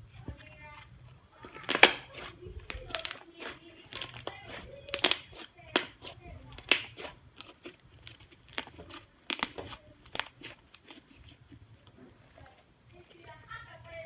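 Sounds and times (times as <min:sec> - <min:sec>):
slime popping and crackling: 0:01.4 - 0:14.0.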